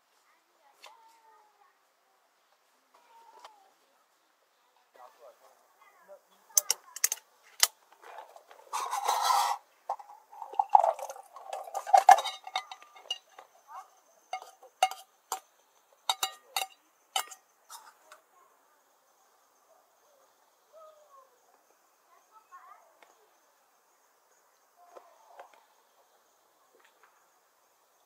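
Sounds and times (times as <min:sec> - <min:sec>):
cookware clinking and knocking: 0:08.7 - 0:18.1.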